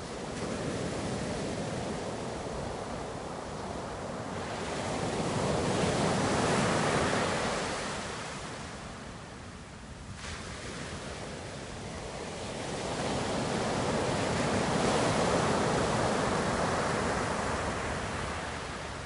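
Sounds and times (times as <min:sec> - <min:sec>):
ocean waves washing: 0:10.1 - 0:19.0.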